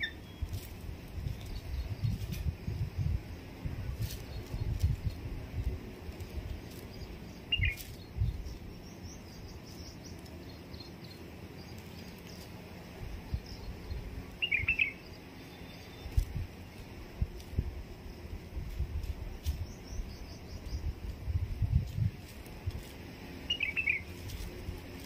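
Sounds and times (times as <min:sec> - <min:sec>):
bird chirps: 0:00.0 - 0:00.6, 0:06.9 - 0:12.4, 0:13.3 - 0:16.2, 0:23.5 - 0:24.1
faint high chirping: 0:00.0 - 0:05.0, 0:06.8 - 0:12.5, 0:13.1 - 0:16.4, 0:23.5 - 0:24.2.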